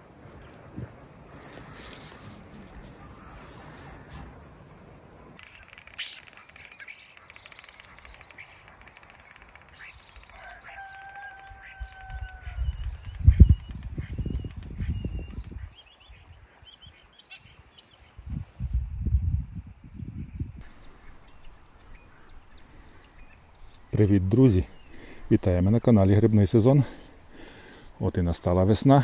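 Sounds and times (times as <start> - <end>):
small birds chirping: 5.2 - 18.4, 19.1 - 29.0.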